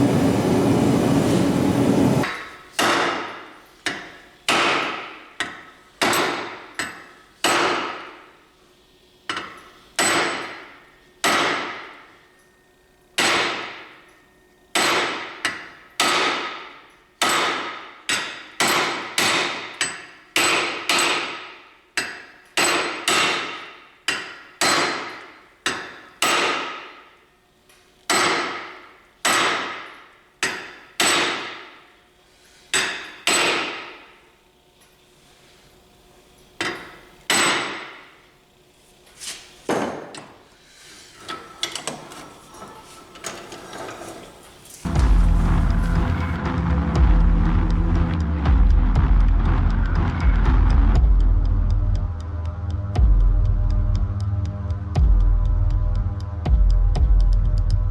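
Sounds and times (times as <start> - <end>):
hammer ringing on anvil: 9.3 - 27.0, 36.6 - 38.1.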